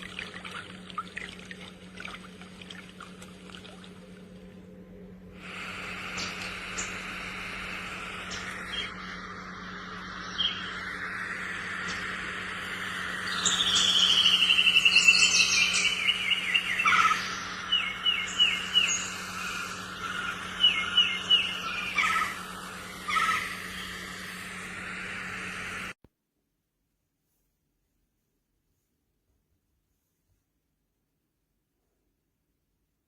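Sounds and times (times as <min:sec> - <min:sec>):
birdsong: 0:00.0 - 0:25.9
background hiss and hum: 0:00.0 - 0:33.0
descending trill of chirps: 0:06.0 - 0:26.0.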